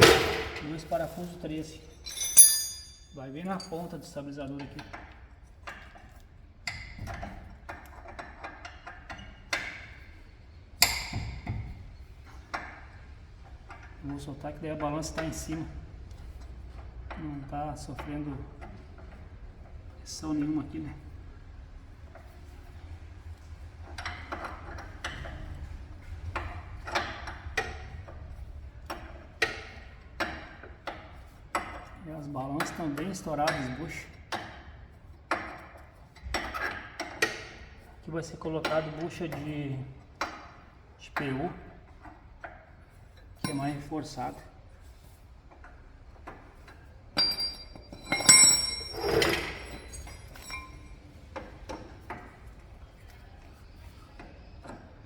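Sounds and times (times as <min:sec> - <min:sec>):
metal tools clanking on steel: 0:00.0 - 0:05.0, 0:43.4 - 0:44.2, 0:47.2 - 0:52.3
wrench clinking on bolts: 0:01.6 - 0:05.0, 0:43.4 - 0:44.0, 0:47.2 - 0:51.5.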